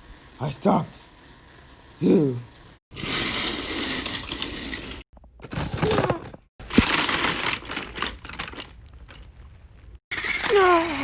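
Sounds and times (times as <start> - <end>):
train crashing and clattering: 3.0 - 8.8.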